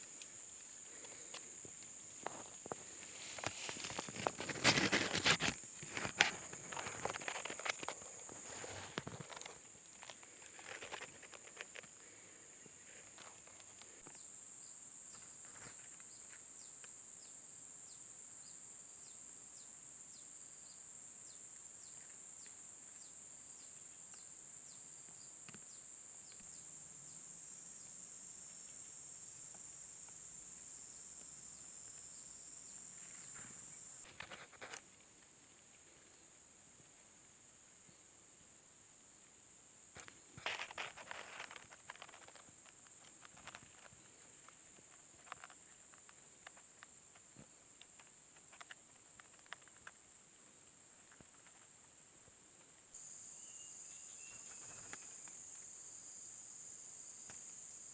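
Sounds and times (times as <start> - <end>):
rustling clicks: 2.2 - 11.9, 40.0 - 47.2
high-pitched insect drone: 53.0 - 57.9.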